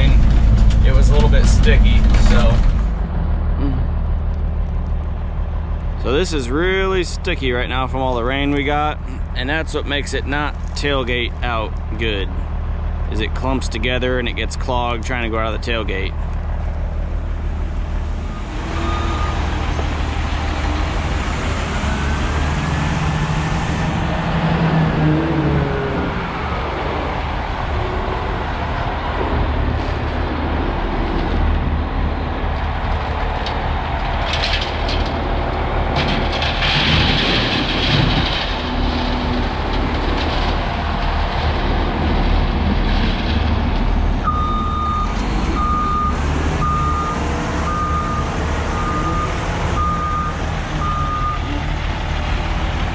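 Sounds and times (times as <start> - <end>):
diesel truck engine running: 0.0 - 52.9
reversing alarm beeping: 18.3 - 19.6, 44.3 - 51.5.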